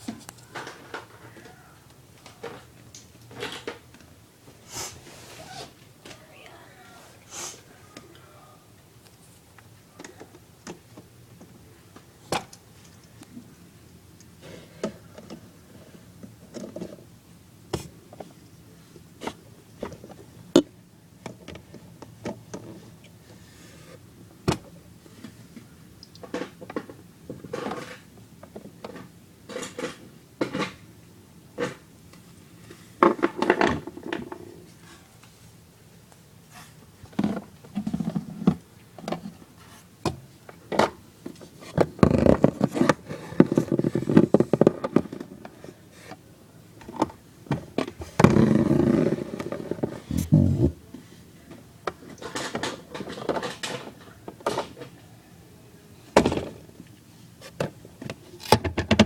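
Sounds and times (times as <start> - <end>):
plastic scraping and rustling: 40.6 - 46.2.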